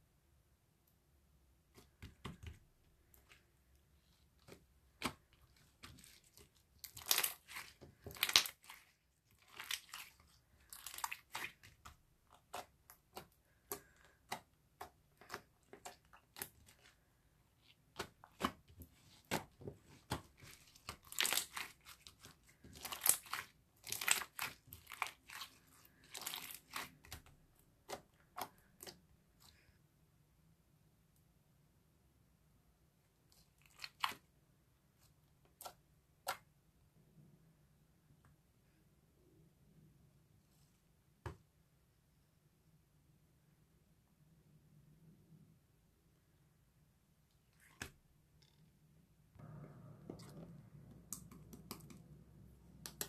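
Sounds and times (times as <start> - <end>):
crinkling and crunching: 4.4 - 29.0.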